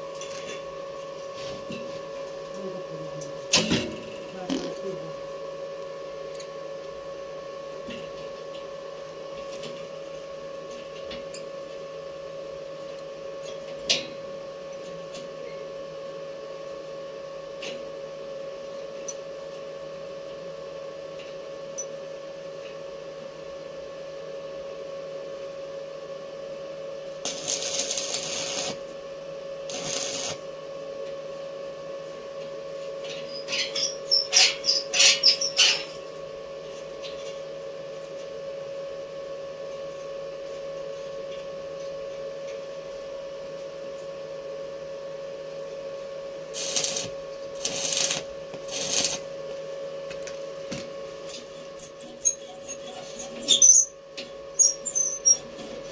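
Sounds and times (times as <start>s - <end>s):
welding equipment hum: 27.1s - 30.9s, 32.7s - 37.0s, 46.4s - 55.9s
arc welding crackle: 27.2s - 29.0s, 29.6s - 30.6s, 33.3s - 36.2s, 46.5s - 49.6s, 50.2s - 55.9s.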